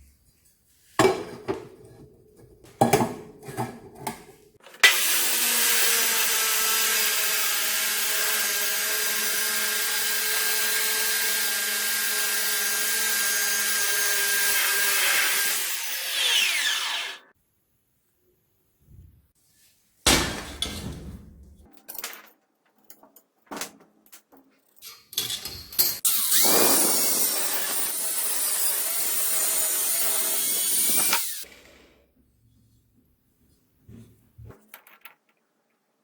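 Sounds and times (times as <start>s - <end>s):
power drill whining: 4.8s - 17.2s, 26.1s - 31.5s.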